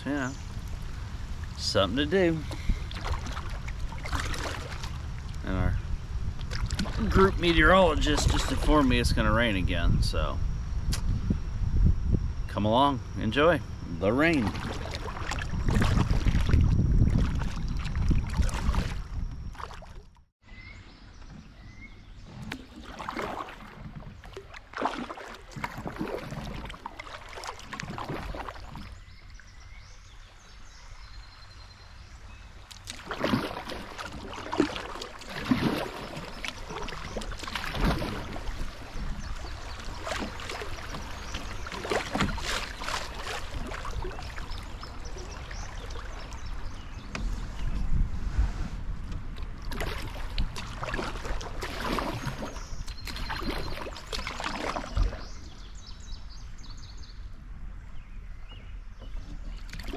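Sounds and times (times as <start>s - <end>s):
wind rumble on microphone: 0.0s - 24.6s, 35.4s - 59.9s
paddle strokes splashing water: 0.6s - 5.5s, 6.3s - 8.9s, 14.1s - 20.2s, 21.2s - 31.4s, 32.6s - 56.1s, 59.0s - 59.9s.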